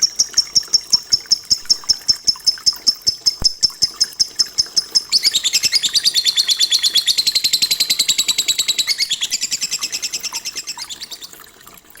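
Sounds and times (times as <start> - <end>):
bird twittering high chirps: 3.1 - 11.4.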